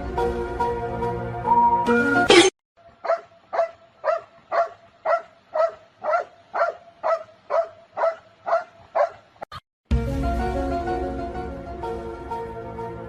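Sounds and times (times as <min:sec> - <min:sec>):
dog barking: 0:03.0 - 0:09.3.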